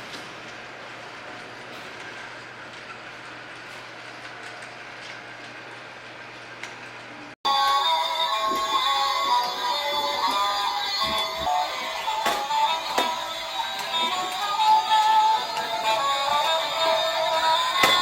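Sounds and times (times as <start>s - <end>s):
loud music: 7.5s - 18.0s
toy train mechanical whirring: 7.5s - 18.0s.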